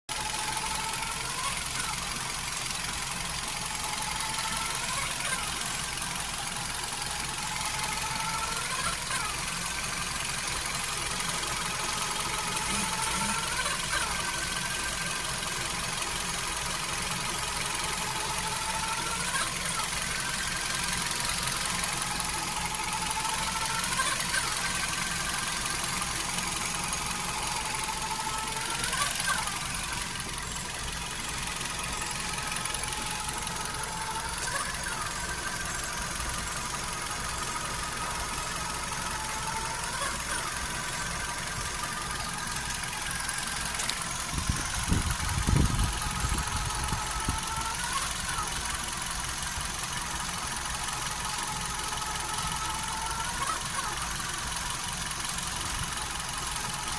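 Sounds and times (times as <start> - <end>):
car engine idling: 0.1 - 56.9
high squealing whine: 16.6 - 48.8.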